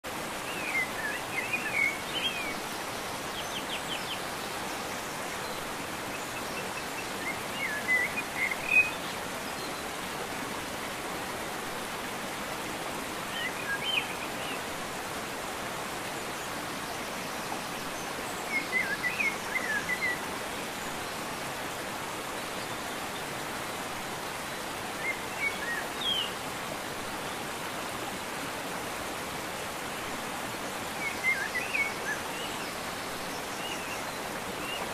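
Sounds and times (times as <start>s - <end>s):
birds chirping: 0.2s - 10.0s, 24.4s - 26.4s.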